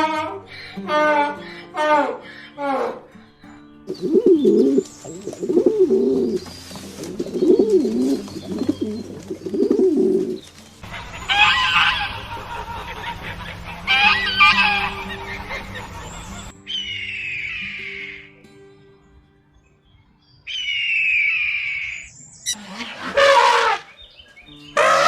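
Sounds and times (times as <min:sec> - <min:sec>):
high-pitched animal call: 0:00.0 - 0:03.2, 0:07.2 - 0:12.4, 0:13.8 - 0:18.4, 0:20.5 - 0:24.0, 0:24.8 - 0:25.0
pigeon cooing: 0:03.8 - 0:18.3.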